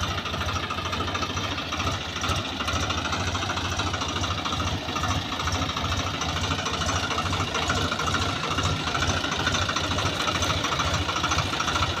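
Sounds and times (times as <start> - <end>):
engine idling with pulsing beat: 0.0 - 12.0.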